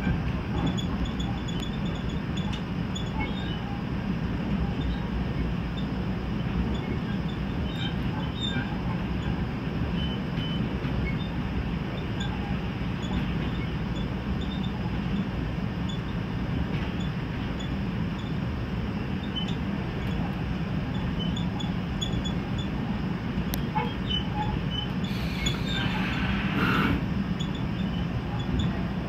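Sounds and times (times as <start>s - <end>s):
train running on rails: 0.0s - 29.0s
faint high squeaks: 20.9s - 22.7s, 23.7s - 28.8s.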